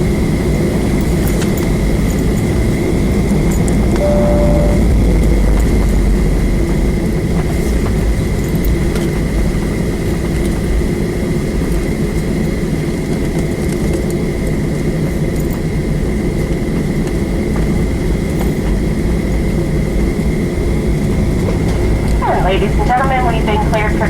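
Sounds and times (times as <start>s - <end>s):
jet engines rumbling: 0.0s - 24.0s
high steady whine: 4.0s - 8.4s, 19.5s - 24.0s.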